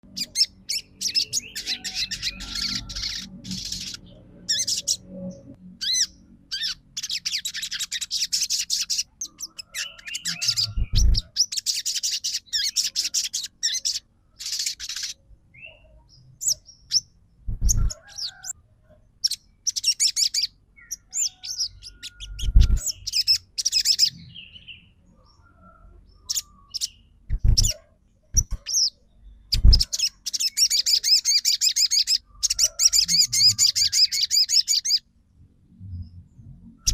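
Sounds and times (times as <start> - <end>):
bird singing fast trills: 0.0 - 18.6, 19.2 - 25.0, 26.1 - 35.1
dull low thumps: 10.8 - 11.2, 17.4 - 17.9, 22.4 - 22.8, 27.3 - 27.7, 29.6 - 29.9.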